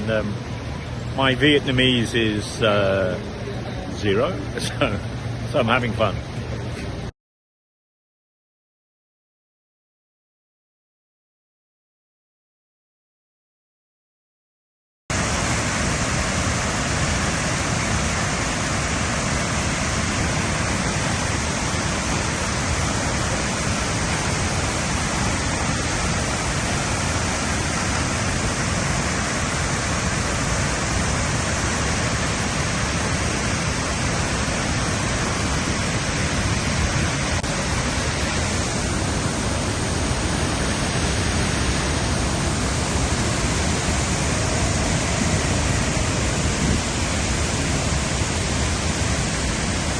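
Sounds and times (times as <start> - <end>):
waterfall rushing: 15.1 - 49.9.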